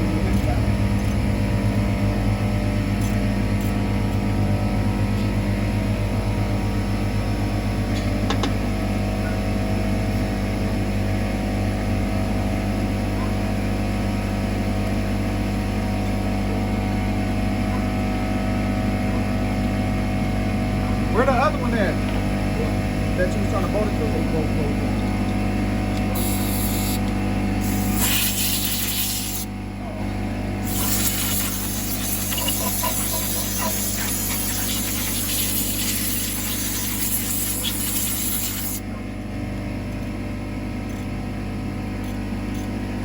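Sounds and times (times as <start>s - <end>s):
motor drone: 20.8s - 38.9s.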